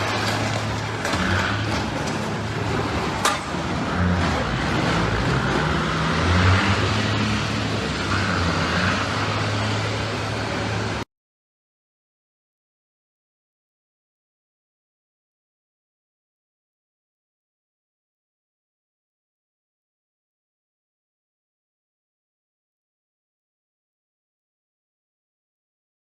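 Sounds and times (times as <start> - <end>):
car engine and road noise: 0.0 - 11.1.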